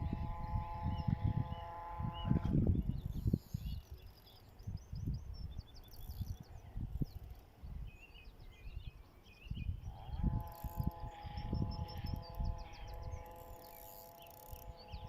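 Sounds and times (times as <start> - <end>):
steady droning tone: 0.0 - 2.9, 9.8 - 15.0
wind buffeting microphone: 0.0 - 15.0
small birds chirping: 0.4 - 15.0.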